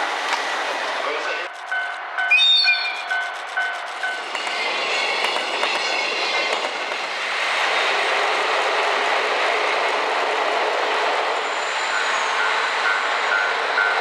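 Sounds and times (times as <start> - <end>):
train wheels rumbling on rails: 0.0 - 14.0
rail clicking: 1.5 - 10.7.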